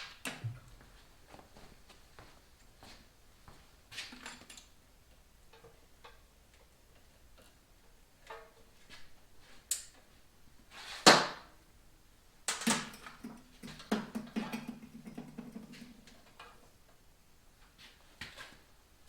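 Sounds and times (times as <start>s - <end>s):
metal tools clanking: 12.6s - 16.4s.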